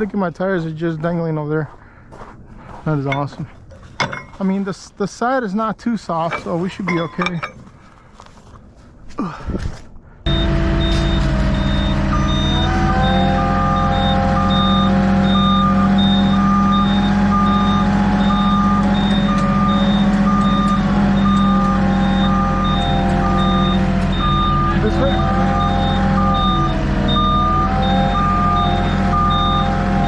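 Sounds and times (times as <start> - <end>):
diesel engine running: 10.2 - 30.0
backup alarm beeping: 10.3 - 30.0.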